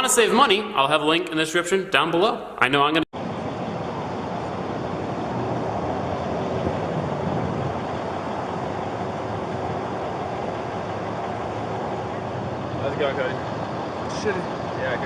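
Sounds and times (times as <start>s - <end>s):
steady rushing noise: 3.2s - 15.0s.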